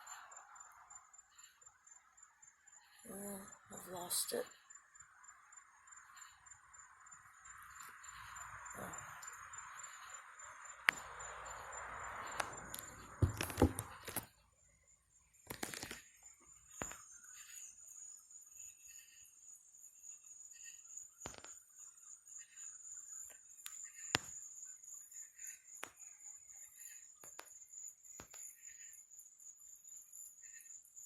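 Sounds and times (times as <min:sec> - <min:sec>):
night insects trilling: 0:00.0 - 0:31.0
phone handling knocks and clicks: 0:12.8 - 0:14.2.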